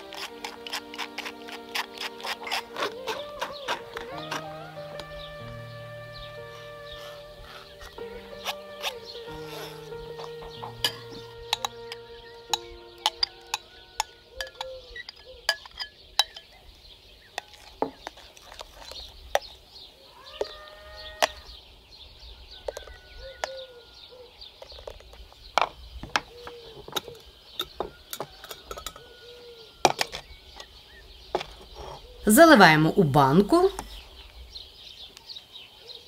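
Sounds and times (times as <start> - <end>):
steady high hiss: 0.0 - 14.4
birds chirping: 0.0 - 36.0
spoon clinking against a sieve: 12.5 - 16.6.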